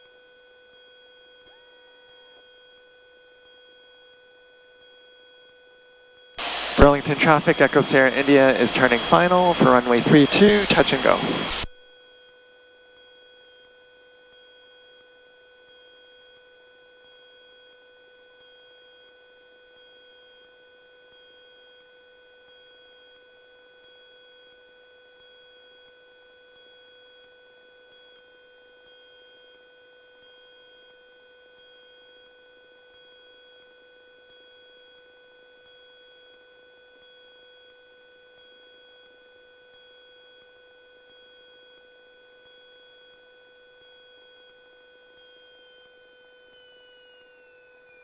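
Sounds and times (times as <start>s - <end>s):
faint steady electronic tone: 6.4s - 11.7s.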